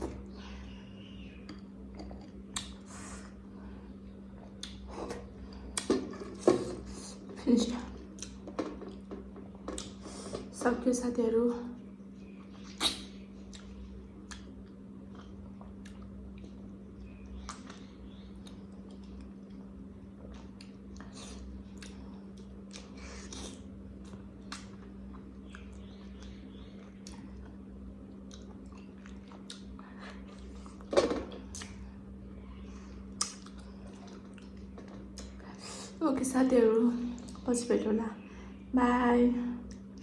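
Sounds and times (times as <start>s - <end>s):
low hum: 0.0s - 40.0s
person chewing and swallowing: 1.4s - 2.9s, 4.3s - 7.4s, 8.0s - 10.5s, 12.3s - 31.8s, 33.0s - 35.6s
wet mouth clicks and smacks: 1.5s - 2.8s, 4.6s - 4.8s, 12.6s - 16.0s, 33.2s - 35.4s.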